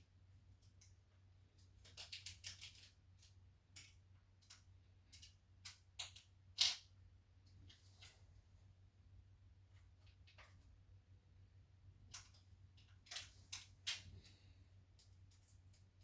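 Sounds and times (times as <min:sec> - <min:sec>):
light clicks and taps of parts: 0:00.5 - 0:08.2, 0:12.1 - 0:16.0.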